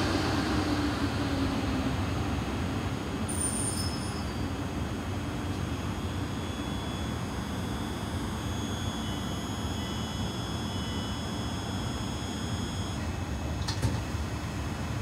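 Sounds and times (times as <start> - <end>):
train wheels rumbling on rail: 0.0 - 5.2
high train whine: 0.0 - 15.0.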